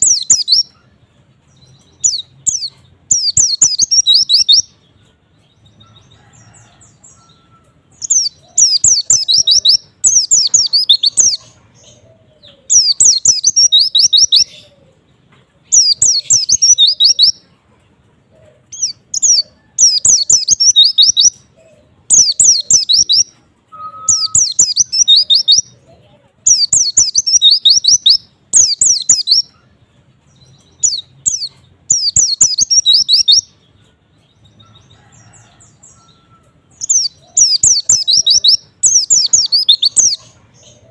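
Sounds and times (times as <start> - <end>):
bird twittering: 0.0 - 0.9, 1.9 - 4.8, 7.2 - 14.8, 15.7 - 17.4, 18.7 - 25.8, 26.5 - 29.6, 30.6 - 33.6, 35.9 - 40.9.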